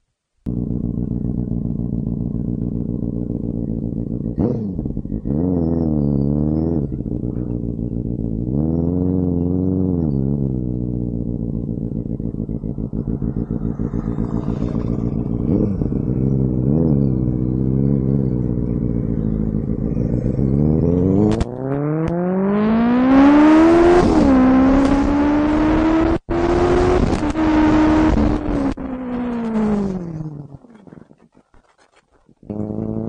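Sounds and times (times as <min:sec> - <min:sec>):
motorcycle engine revving: 0:00.5 - 0:31.3, 0:32.4 - 0:33.0.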